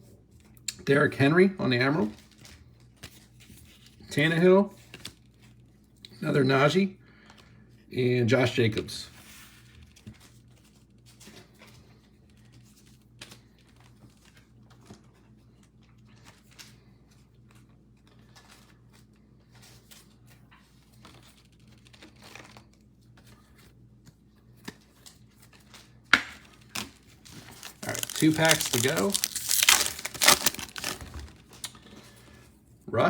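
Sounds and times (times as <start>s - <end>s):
cards and wrappers rustling: 2.0s - 4.0s, 9.2s - 32.4s.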